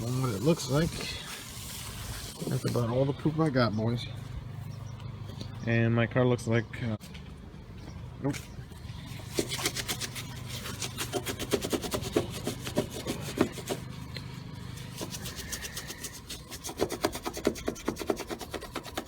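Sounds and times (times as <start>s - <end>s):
wipe scrubbing car paint: 0.0s - 3.0s, 9.3s - 19.0s.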